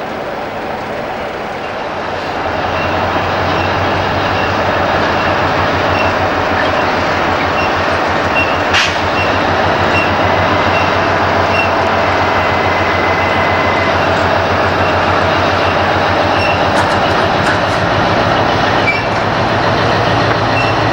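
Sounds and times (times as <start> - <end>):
freight train engine drone: 0.0 - 20.9
train wheel and rail noise: 0.0 - 20.9.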